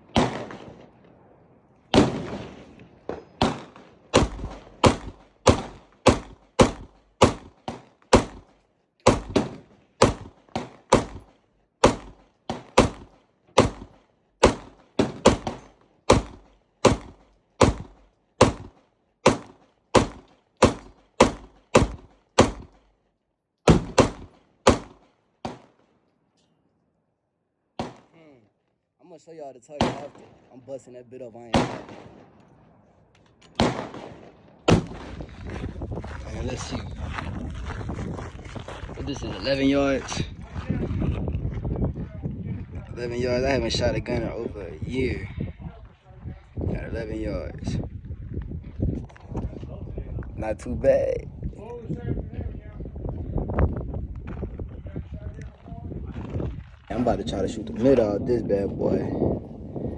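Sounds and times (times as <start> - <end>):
pistol firing shots: 0.0 - 1.0, 1.9 - 22.8, 23.7 - 25.8, 27.8 - 28.1, 29.8 - 30.5, 31.5 - 32.4, 33.5 - 35.2.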